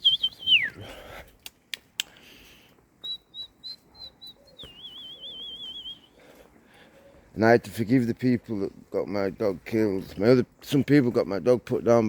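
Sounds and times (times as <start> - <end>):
bird song whistled notes: 0.0 - 0.8, 3.0 - 6.2
sharp clicks: 1.4 - 2.2.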